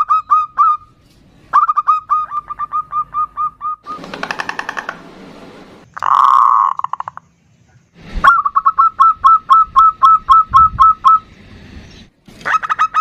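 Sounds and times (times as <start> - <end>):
dove rolling trill: 1.6 - 5.3.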